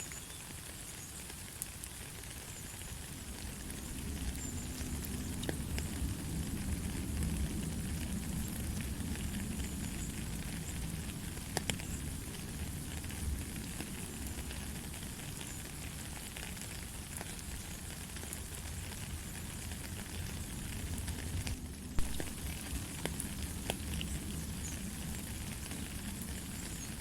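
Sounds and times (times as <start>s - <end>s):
light rain hiss: 0.0s - 27.0s
raindrop taps: 11.5s - 12.0s, 21.4s - 26.7s.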